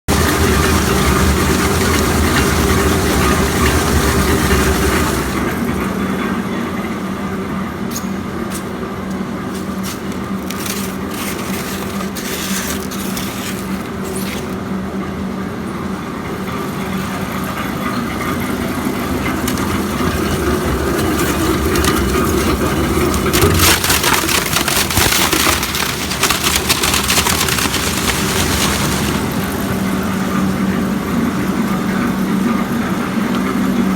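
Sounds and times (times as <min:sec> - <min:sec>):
harsh grinding noise: 0:09.5 - 0:14.7, 0:18.7 - 0:29.8.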